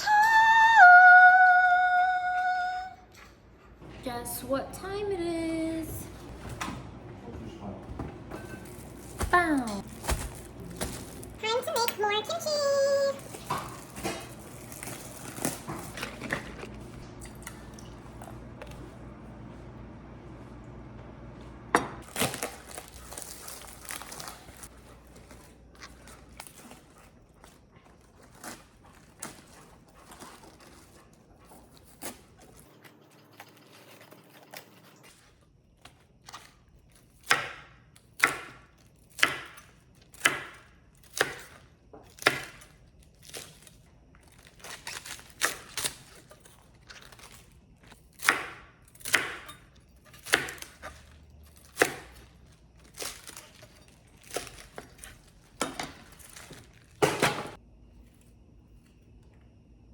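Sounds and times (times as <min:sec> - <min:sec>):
rustling: 0:08.5 - 0:11.8, 0:22.1 - 0:32.1.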